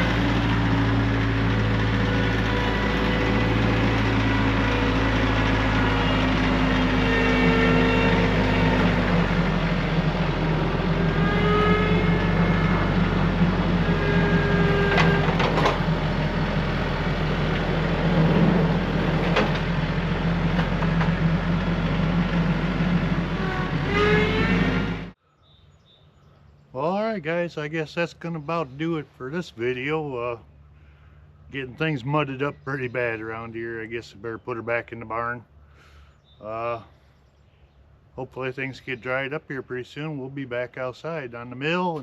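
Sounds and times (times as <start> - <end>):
tractor engine running: 0.0 - 25.2.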